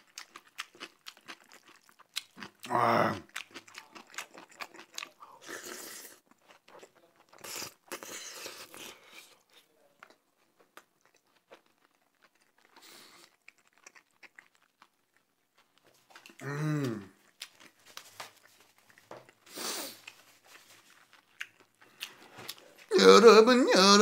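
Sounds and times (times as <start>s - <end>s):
wet chewing and smacking: 0.0s - 16.4s, 17.0s - 22.9s.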